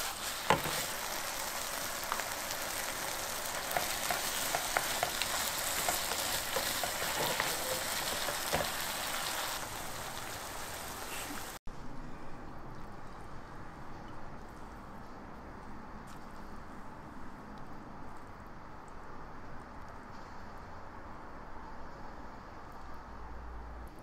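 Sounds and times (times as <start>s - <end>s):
food sizzling in a wok: 0.0s - 11.6s
stirring clicks: 2.0s - 9.7s.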